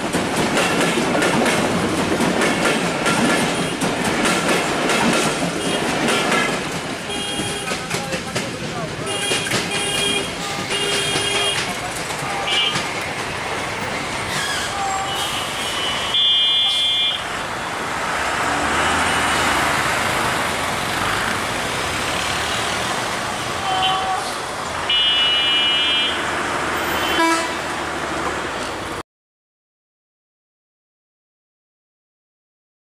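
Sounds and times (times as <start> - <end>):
train wheels rumbling: 0.0 - 16.2, 17.2 - 24.9
high-pitched train horn blasts: 23.6 - 26.2, 26.9 - 27.7.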